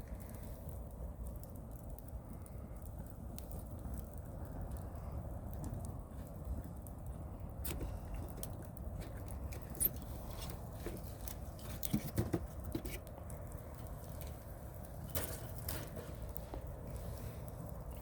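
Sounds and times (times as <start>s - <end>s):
campfire crackling and popping: 0.0s - 18.0s
low steady fire rumble: 0.0s - 18.0s.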